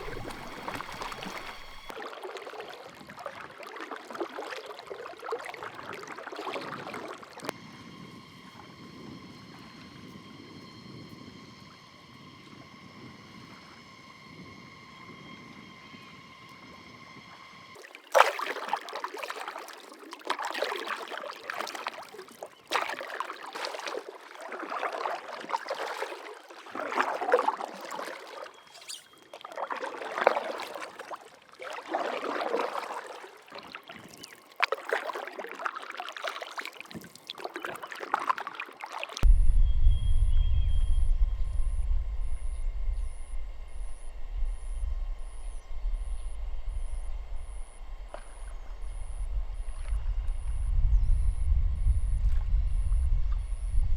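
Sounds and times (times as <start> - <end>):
faint steady hum: 0.0 - 1.9, 39.2 - 53.9
paddle splashing in water: 0.0 - 7.5, 17.8 - 39.3, 48.0 - 50.4
loud low rumble: 39.2 - 53.9.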